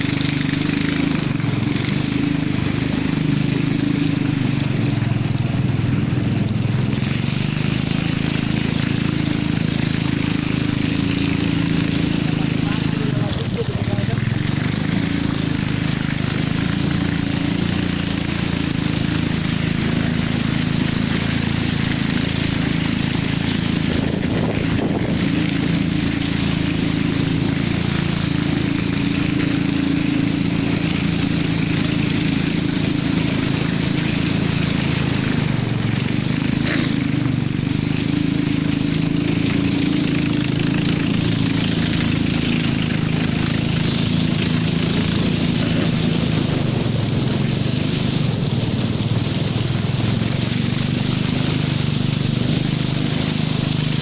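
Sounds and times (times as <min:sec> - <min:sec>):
outboard engine running: 0:00.0 - 0:54.0
water rushing: 0:00.0 - 0:54.0
wind: 0:00.0 - 0:54.0.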